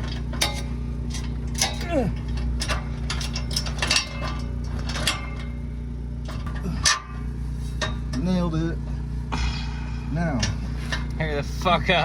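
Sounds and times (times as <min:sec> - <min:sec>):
metal clinks and knocks: 0:00.0 - 0:08.3
steady low hum: 0:00.0 - 0:12.0.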